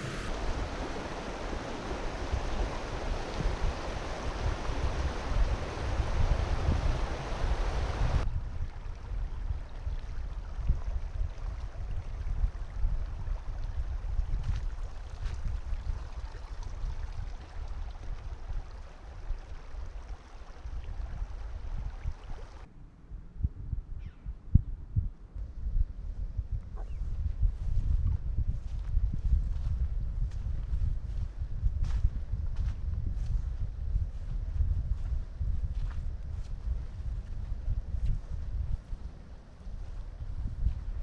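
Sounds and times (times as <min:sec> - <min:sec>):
low rumble: 0:00.0 - 0:06.3
faint steady hiss: 0:00.0 - 0:08.2
running water rushing: 0:00.0 - 0:08.2, 0:14.6 - 0:22.7.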